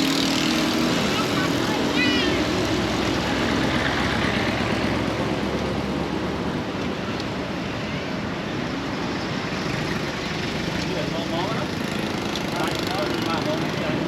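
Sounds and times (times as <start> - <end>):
road traffic noise: 0.0 - 14.0.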